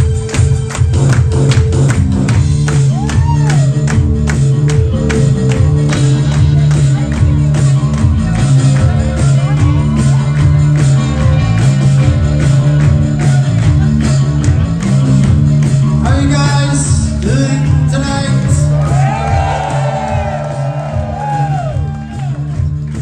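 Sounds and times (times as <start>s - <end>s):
rock band playing: 0.0s - 23.0s
person singing and shouting: 16.0s - 19.0s.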